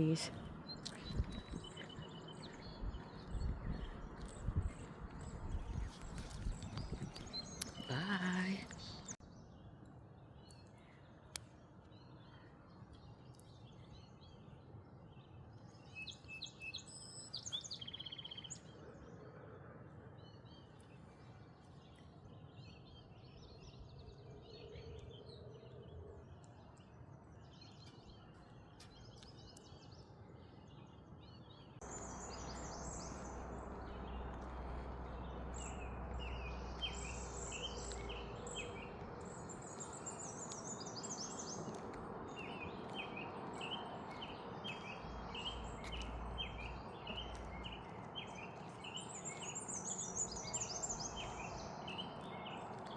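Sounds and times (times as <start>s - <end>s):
birds chirping and singing: 31.3s - 52.9s.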